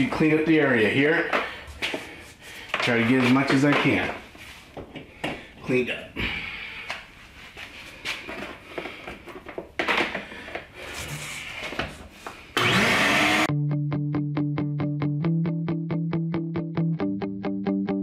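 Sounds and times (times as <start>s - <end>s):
shop vac motor whine: 12.6s - 13.5s
plucked guitar music: 13.5s - 18.0s.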